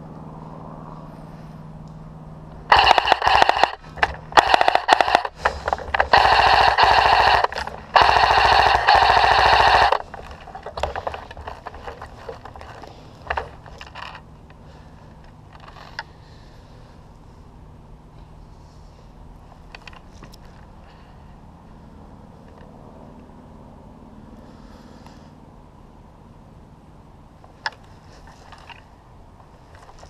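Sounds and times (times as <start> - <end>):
airsoft rifle firing bursts: 2.7 - 14.2
isolated sharp cracks: 2.7 - 14.2.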